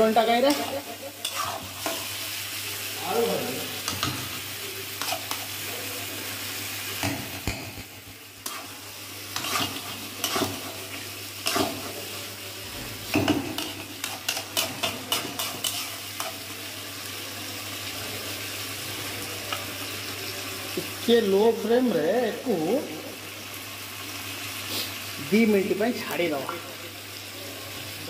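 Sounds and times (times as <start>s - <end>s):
food sizzling in a pan: 0.0s - 28.0s
spatula scraping a pan: 0.4s - 2.2s, 5.0s - 5.6s, 8.4s - 10.8s, 11.4s - 12.0s, 13.2s - 16.5s.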